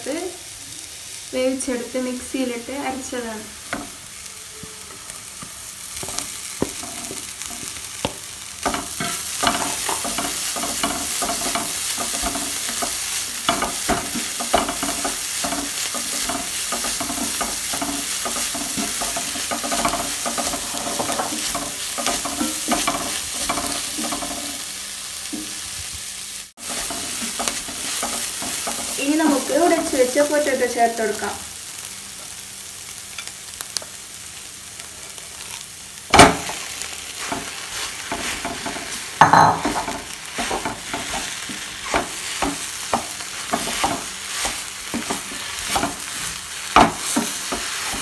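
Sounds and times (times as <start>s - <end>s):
food sizzling in a pan: 0.0s - 48.0s
wooden spatula scraping a pan: 8.6s - 24.6s, 26.6s - 30.2s, 36.5s - 48.0s.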